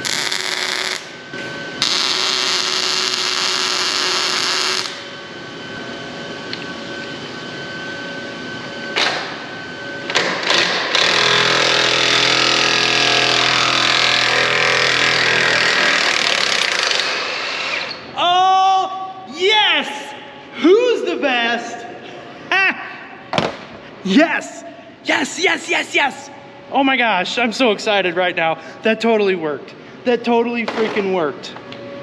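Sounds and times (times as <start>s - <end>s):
welder arc crackling: 0.0s - 1.1s, 1.8s - 5.0s.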